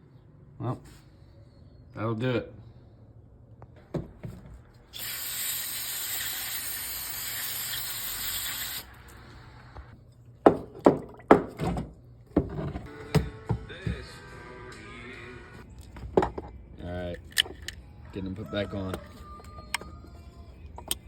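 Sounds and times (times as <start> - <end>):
spray hissing: 5.0 - 9.4
clicks and knocks of parts: 15.8 - 17.8.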